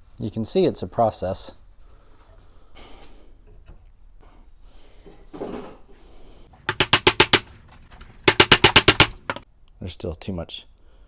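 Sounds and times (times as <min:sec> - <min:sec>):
fast sharp tool strikes: 0:06.6 - 0:09.4.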